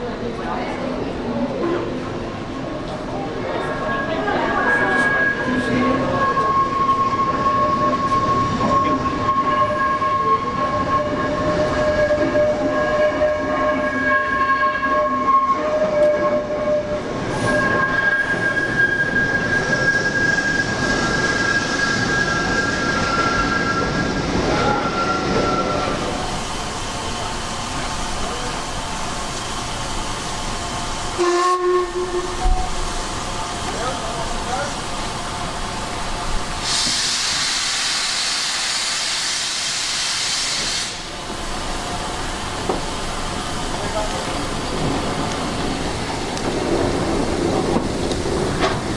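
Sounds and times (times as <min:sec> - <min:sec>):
steam train rumble and hiss: 0:00.0 - 0:48.9
steam hissing from locomotive: 0:32.2 - 0:48.9.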